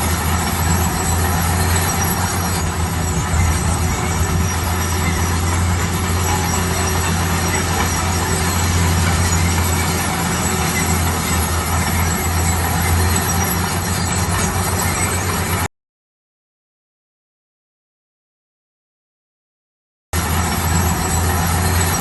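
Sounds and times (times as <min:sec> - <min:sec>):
heavy machinery engine drone: 0:00.0 - 0:15.7, 0:20.2 - 0:22.0.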